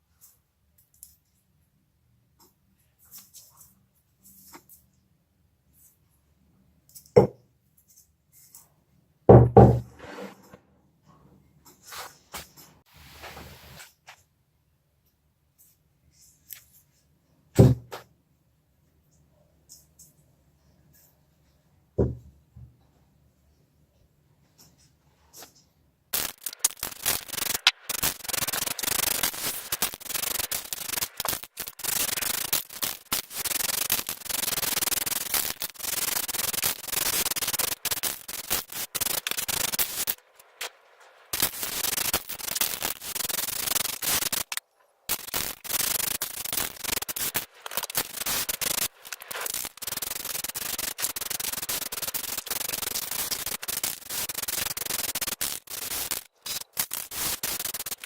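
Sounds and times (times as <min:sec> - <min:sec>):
hand sanding metal: 0:26.2 - 0:40.4.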